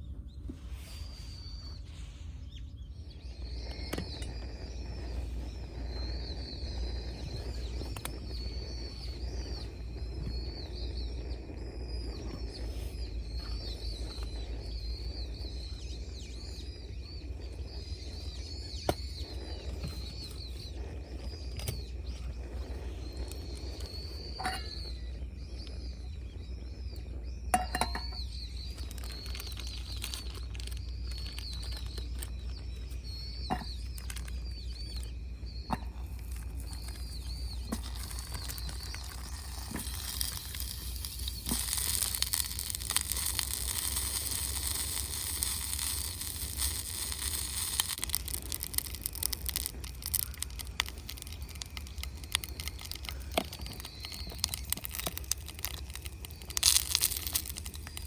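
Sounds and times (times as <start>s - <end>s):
birds twittering: 0.0s - 58.0s
low steady rumble: 0.0s - 58.0s
sharp clicks: 36.2s - 58.0s.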